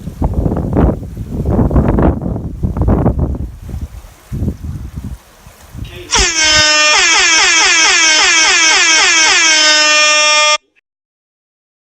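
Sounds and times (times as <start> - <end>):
buzzy swooping electronic tone: 6.2 - 10.6.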